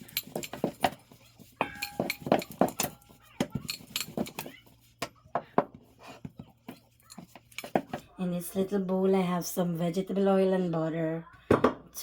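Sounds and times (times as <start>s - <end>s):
kitchen utensils and dishes clinking: 0.0s - 5.0s, 5.6s - 8.1s.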